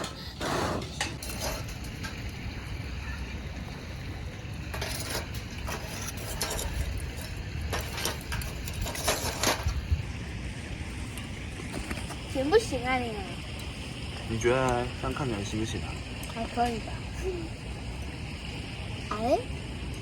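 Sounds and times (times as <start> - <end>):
camp cooking gear clinking: 0.0 - 3.2, 4.6 - 9.9
steady low rumble: 0.0 - 20.0.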